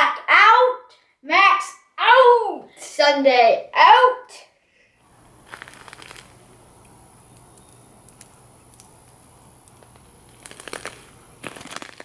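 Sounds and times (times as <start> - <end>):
faint steady hum: 0.0 - 12.0
short rustling crackles: 5.4 - 6.4.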